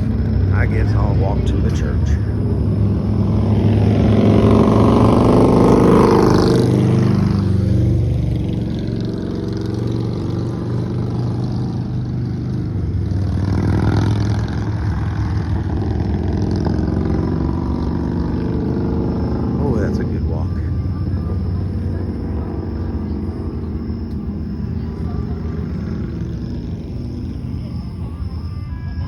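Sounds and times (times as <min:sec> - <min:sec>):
road and wind noise: 0:00.0 - 0:29.0
vehicle engine at road speed: 0:00.0 - 0:29.0.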